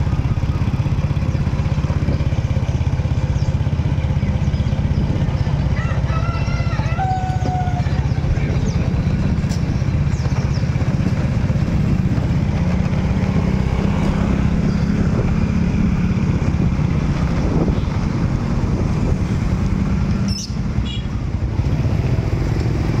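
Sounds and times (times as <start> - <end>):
motorcycle and street traffic: 0.0 - 23.0.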